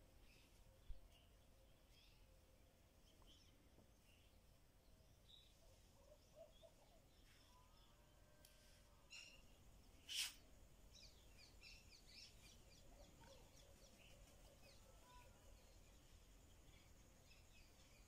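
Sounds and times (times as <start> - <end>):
small birds chirping: 0.2 - 8.1, 9.1 - 18.0
short hiss: 10.1 - 10.5.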